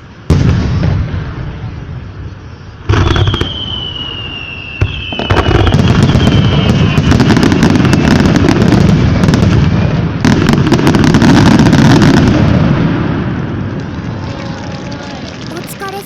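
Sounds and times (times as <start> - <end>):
fireworks booming and crackling: 0.0 - 16.0
firework whistle: 2.5 - 8.6
firework bursts: 15.5 - 16.0.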